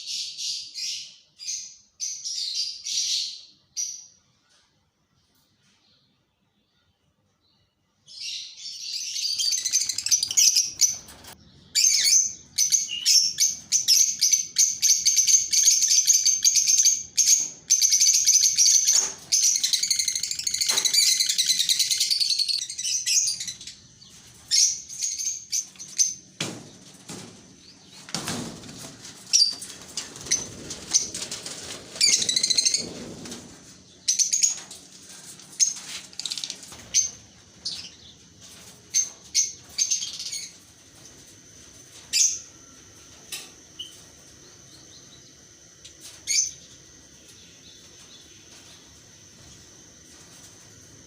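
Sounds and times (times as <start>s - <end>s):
small birds chirping: 6.8s - 41.2s, 41.8s - 50.7s
wings fluttering: 9.4s - 44.7s.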